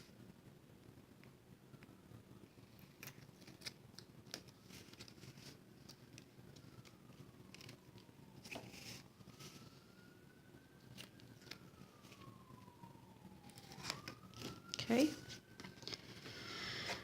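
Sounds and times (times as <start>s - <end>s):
paper clicks and crinkles: 2.7s - 10.0s, 10.8s - 12.8s, 13.4s - 17.0s.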